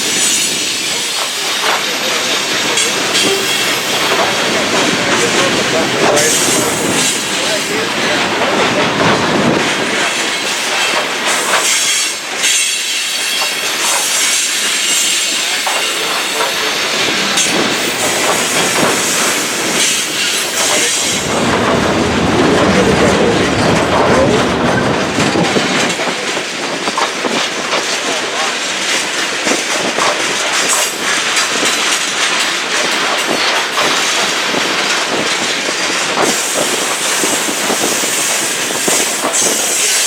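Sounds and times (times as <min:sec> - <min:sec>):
freight train rolling past: 0:00.0 - 0:40.0
wheels clicking over rail joints: 0:00.0 - 0:40.0.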